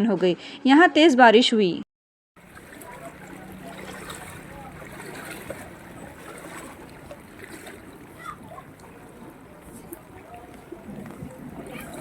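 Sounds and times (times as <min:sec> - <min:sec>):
floodwater rushing: 0:02.4 - 0:12.0.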